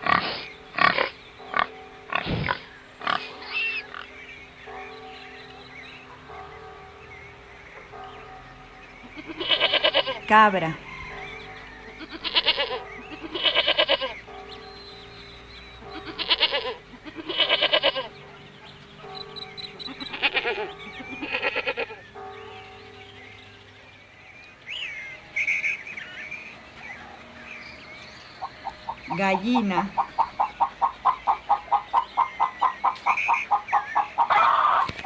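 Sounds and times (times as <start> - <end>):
goats bleating: 12.0 - 14.2, 16.0 - 18.1.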